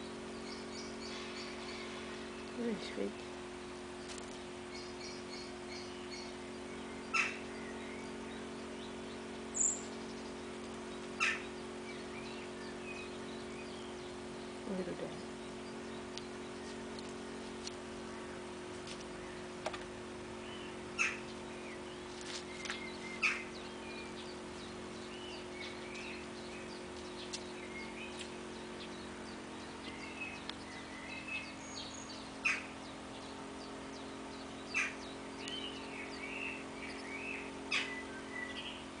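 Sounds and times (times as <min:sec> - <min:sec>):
low hum: 0:00.0 - 0:39.0
small birds chirping and twittering: 0:00.0 - 0:39.0
sharp bird chips: 0:04.1 - 0:14.3, 0:20.5 - 0:38.9.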